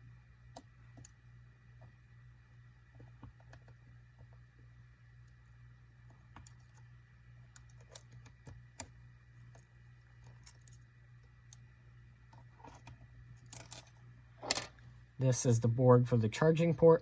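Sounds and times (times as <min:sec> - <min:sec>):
steady low hum: 0:00.0 - 0:17.0
small tool clicking on phone parts: 0:06.1 - 0:11.7, 0:12.3 - 0:14.7.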